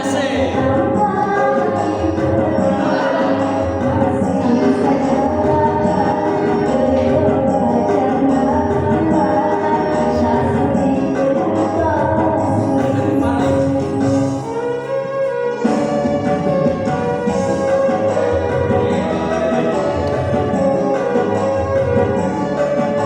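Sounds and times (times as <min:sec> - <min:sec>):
woman singing pop song: 0:00.0 - 0:14.4
instrumental backing: 0:00.0 - 0:23.0
jingling percussion: 0:00.0 - 0:23.0.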